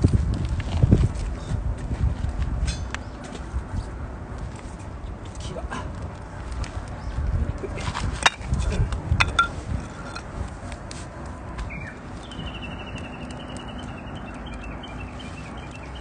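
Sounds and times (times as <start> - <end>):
bird whistle and trill: 11.7 - 16.0.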